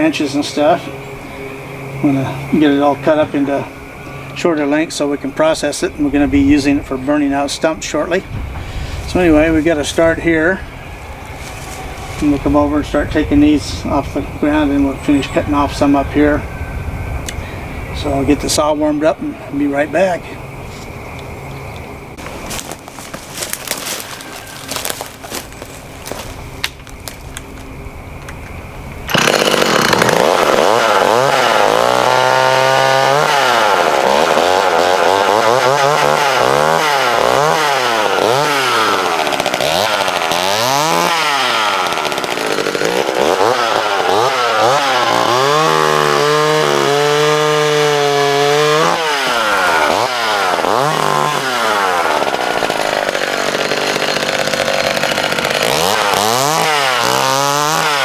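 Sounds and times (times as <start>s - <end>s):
chainsaw engine revving: 22.2s - 26.3s, 29.1s - 58.0s.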